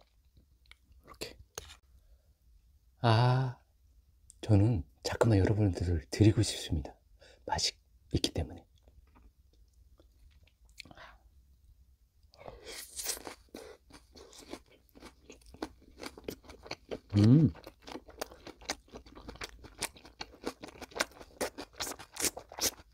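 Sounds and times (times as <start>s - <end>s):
crunchy chewing: 12.6s - 22.9s
person humming mm: 17.1s - 17.6s.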